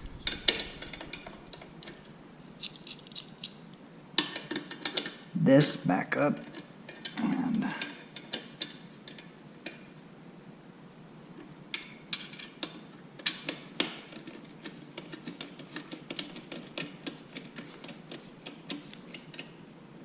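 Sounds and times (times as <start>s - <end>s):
hand wrench clicking on metal: 2.6s - 3.6s.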